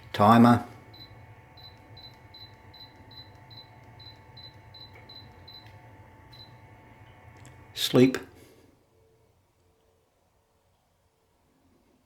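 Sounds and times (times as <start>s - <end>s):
humidifier short high beeps: 0.2s - 6.6s.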